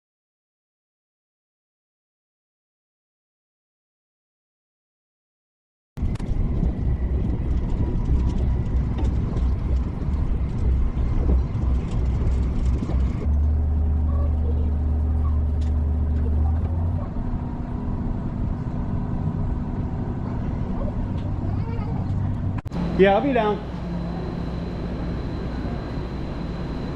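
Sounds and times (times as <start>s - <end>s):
strong low hum: 6.0s - 26.9s
vehicle running rumble: 6.0s - 26.9s
faint steady tones: 22.0s - 26.9s.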